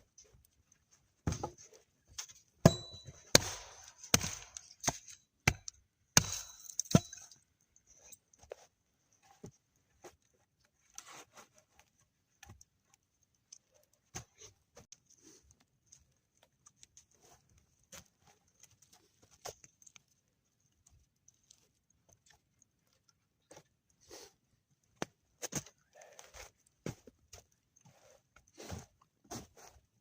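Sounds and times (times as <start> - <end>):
faint irregular clicks and taps: 6.7 - 30.0.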